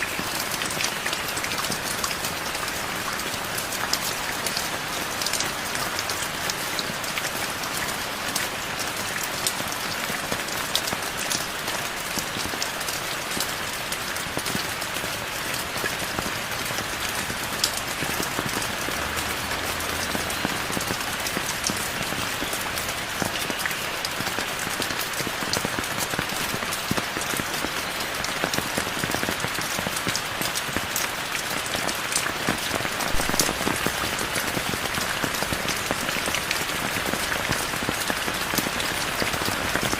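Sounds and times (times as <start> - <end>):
raindrops ticking on surfaces: 0.0 - 39.9
heavy rain hiss: 14.2 - 39.9.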